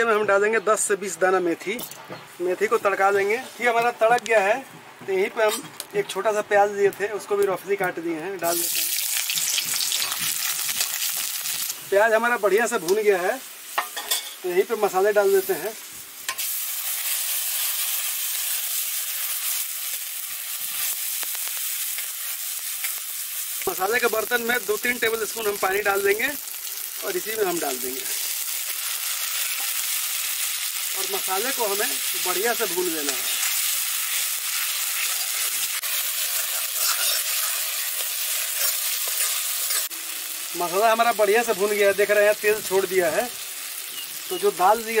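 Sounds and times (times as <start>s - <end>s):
spice paste sizzling in oil: 6.2s - 45.0s
steel spoon scraping: 36.2s - 39.9s.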